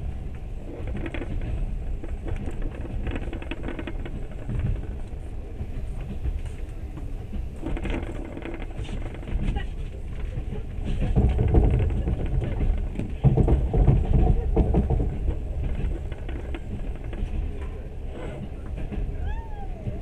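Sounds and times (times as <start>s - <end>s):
passenger train rumbling: 0.0s - 20.0s
people talking: 9.4s - 15.0s, 18.1s - 20.0s.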